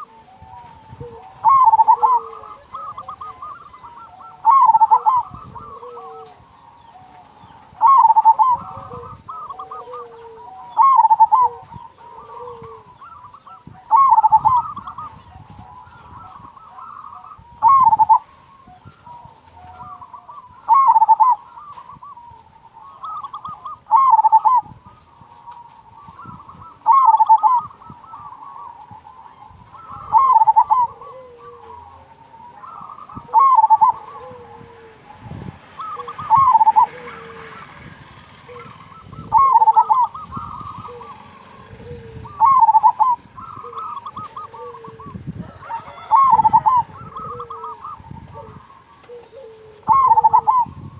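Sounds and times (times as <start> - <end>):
dove cooing: 0.0 - 50.9.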